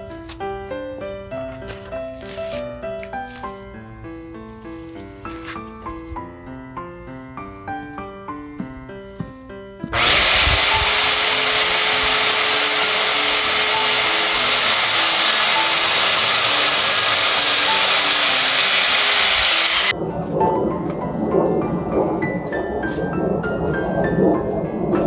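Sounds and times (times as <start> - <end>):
power tool motor running: 10.0 - 19.9.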